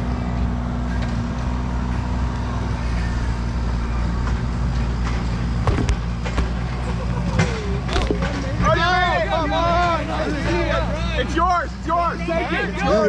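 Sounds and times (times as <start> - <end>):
engine running: 0.0 - 13.0
sharp knocks: 5.6 - 6.6.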